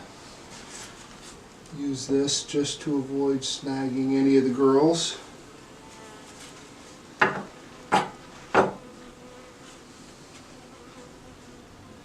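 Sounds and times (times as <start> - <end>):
honeybees humming: 0.0 - 12.0
tools knocking on hive frames: 7.2 - 8.8.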